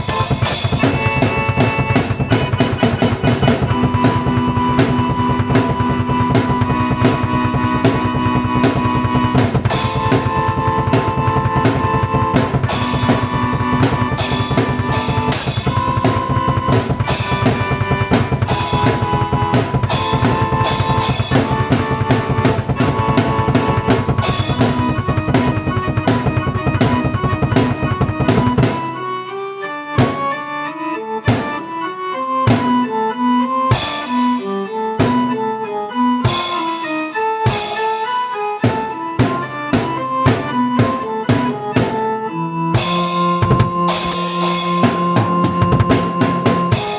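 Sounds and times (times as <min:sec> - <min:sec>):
drum kit beat: 0:00.0 - 0:29.2, 0:30.0 - 0:30.6, 0:31.3 - 0:31.8, 0:32.4 - 0:33.0, 0:33.7 - 0:35.5, 0:36.2 - 0:46.9
keyboard chords: 0:00.0 - 0:46.9.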